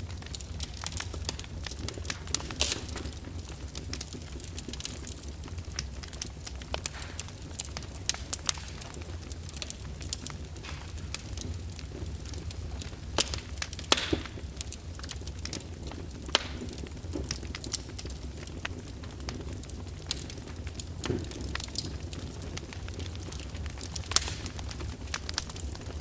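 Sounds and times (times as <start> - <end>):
fire crackling in a fireplace: 0.0 - 26.0
fire hissing: 0.1 - 26.0.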